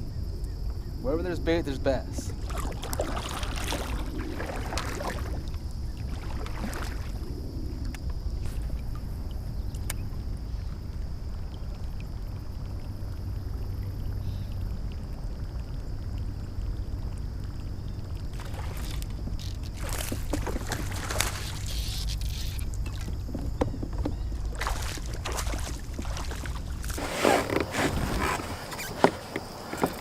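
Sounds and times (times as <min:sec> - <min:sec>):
wind rumble on microphone: 0:00.0 - 0:30.0
fish splashing at water surface: 0:02.4 - 0:05.4, 0:18.4 - 0:23.1, 0:24.5 - 0:27.0.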